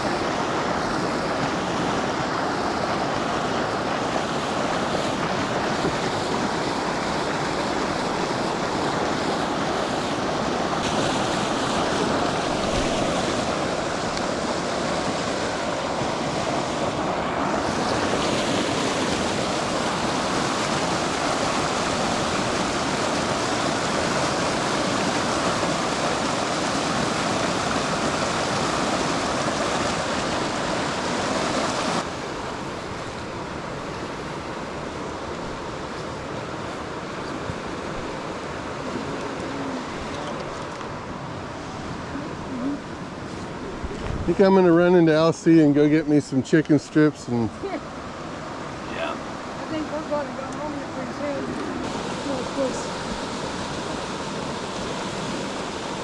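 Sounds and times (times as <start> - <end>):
fast-flowing river water rushing: 0.0 - 56.0.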